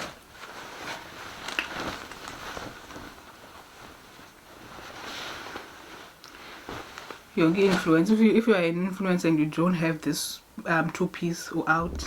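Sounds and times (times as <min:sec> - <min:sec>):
plastic packaging crinkling: 0:00.0 - 0:07.2
clothing rustling: 0:00.0 - 0:08.2.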